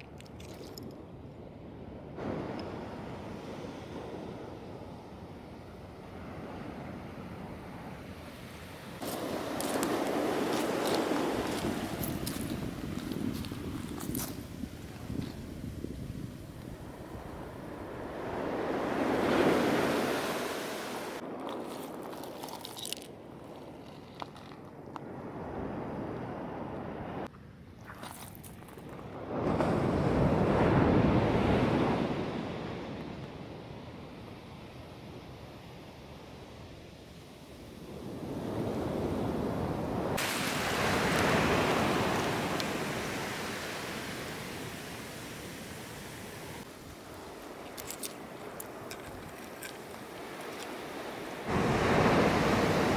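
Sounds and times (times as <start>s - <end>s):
ocean wave washing in: 8.2s - 16.0s, 16.7s - 21.3s, 38.2s - 49.0s, 49.9s - 52.9s
faint crackles and clicks: 47.4s - 50.8s.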